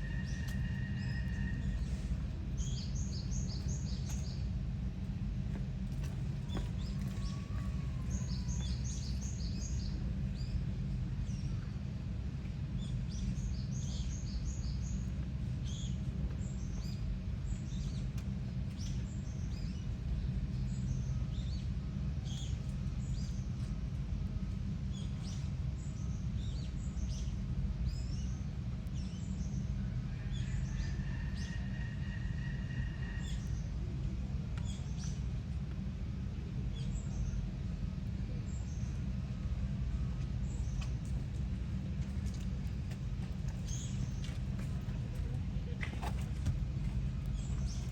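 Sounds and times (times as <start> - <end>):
low background rumble: 0.0 - 47.9
small birds chirping: 42.2 - 47.9.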